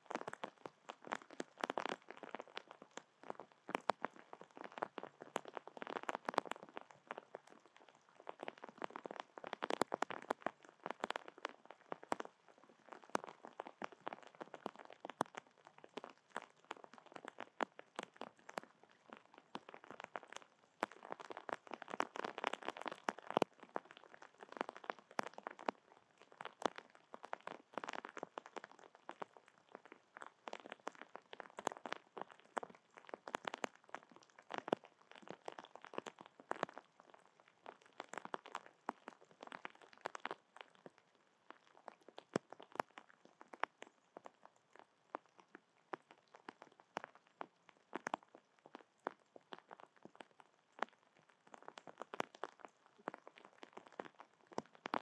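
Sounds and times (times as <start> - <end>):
seeds being cracked and chewed: 9.7 - 11.3.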